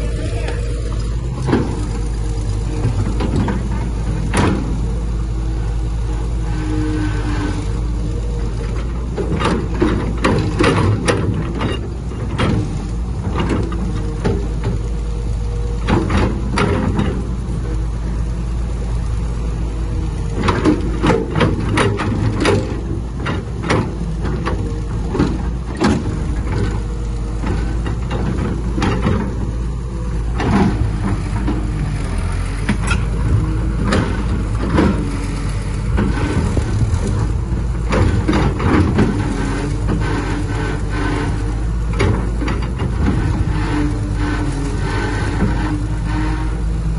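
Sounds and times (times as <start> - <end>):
heavy diesel machinery running: 0.0 - 46.9
sharp metallic clanks and knocks: 2.8 - 4.8, 8.7 - 14.8, 15.8 - 17.4, 20.4 - 26.8, 27.4 - 29.6, 30.3 - 46.6.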